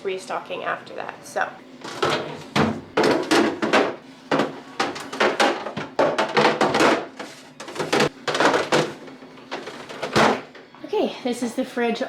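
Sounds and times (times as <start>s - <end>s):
plastic containers clattering: 1.8s - 10.6s.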